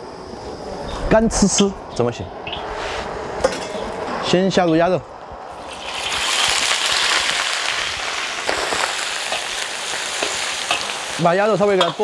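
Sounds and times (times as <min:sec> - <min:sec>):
meat sizzling in hot oil: 0:05.5 - 0:12.0.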